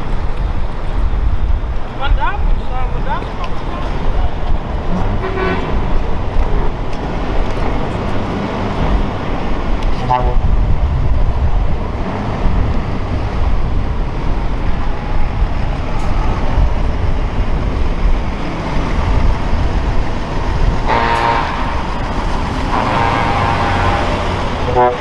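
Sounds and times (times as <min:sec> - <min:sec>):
heavy trucks rumbling past: 0:00.0 - 0:25.0
truck horn toot: 0:04.9 - 0:06.1, 0:10.0 - 0:10.6, 0:20.8 - 0:25.0.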